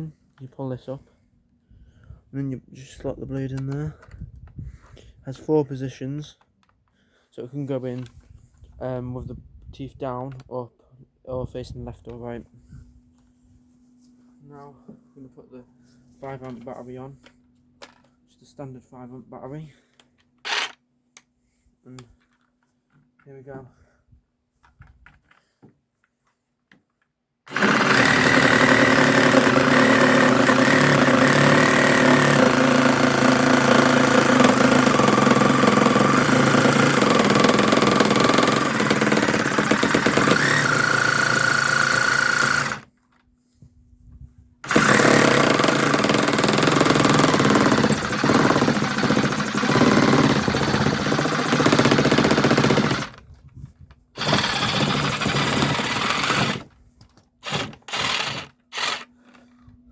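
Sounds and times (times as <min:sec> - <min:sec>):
reciprocating saw cutting wood: 0:27.5 - 0:42.8, 0:44.6 - 0:53.2, 0:54.2 - 0:56.7, 0:57.4 - 0:59.1.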